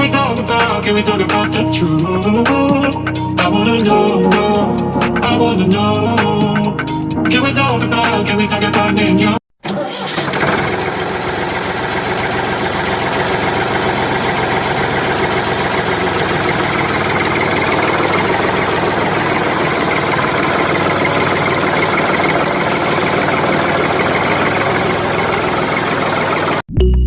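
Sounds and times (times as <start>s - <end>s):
motor running steadily: 10.6s - 26.6s.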